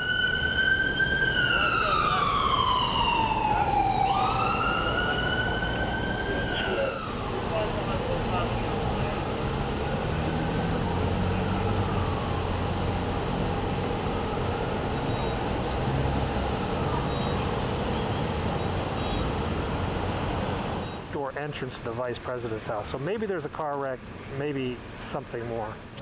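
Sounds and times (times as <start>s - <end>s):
faint police siren wailing: 0.0s - 19.4s
traffic engine rumble: 0.0s - 26.0s.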